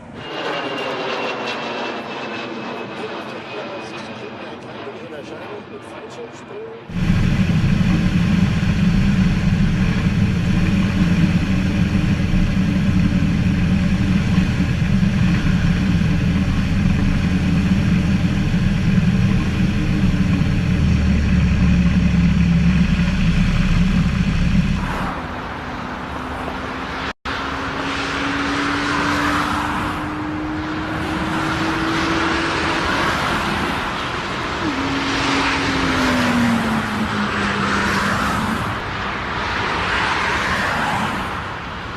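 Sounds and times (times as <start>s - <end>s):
aircraft engine rumble: 0.0s - 41.9s
engine whine: 0.0s - 41.9s.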